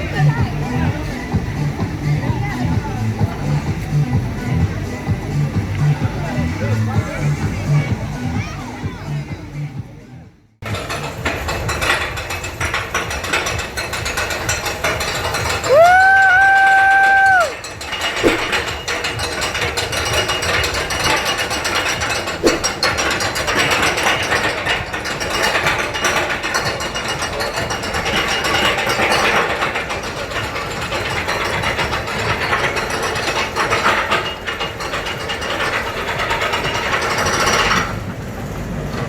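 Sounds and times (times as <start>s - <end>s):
ride machinery ratcheting clatter: 10.6s - 39.0s.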